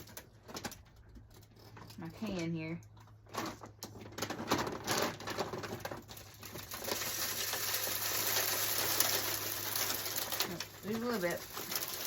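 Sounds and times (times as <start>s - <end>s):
seed pouring into bird feeder: 4.9s - 12.0s.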